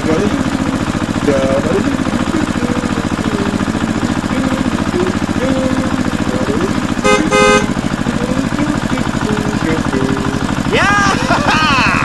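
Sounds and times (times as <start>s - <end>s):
tractor engine chugging: 0.0s - 12.0s
horn tooting: 7.0s - 7.9s.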